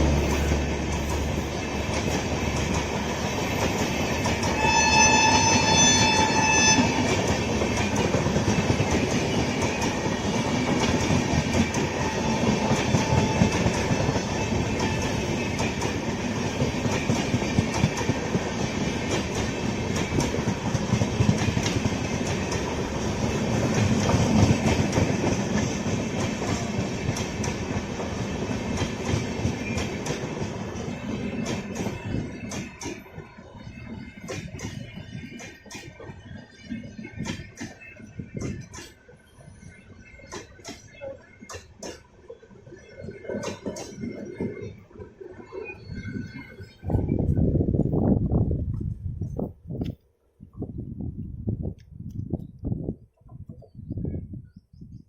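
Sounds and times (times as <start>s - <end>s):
train wheels clattering: 0.0s - 39.1s
train horn: 4.4s - 7.3s, 12.0s - 15.2s.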